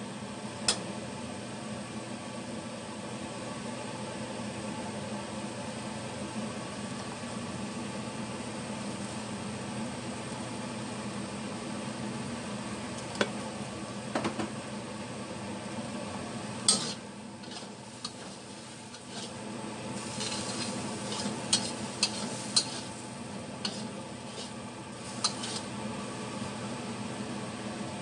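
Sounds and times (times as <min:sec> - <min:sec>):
steady low hum: 0:00.0 - 0:28.0
food sizzling: 0:16.5 - 0:26.5
spatula scraping frying pan: 0:16.7 - 0:19.4, 0:20.0 - 0:23.0, 0:23.6 - 0:25.8.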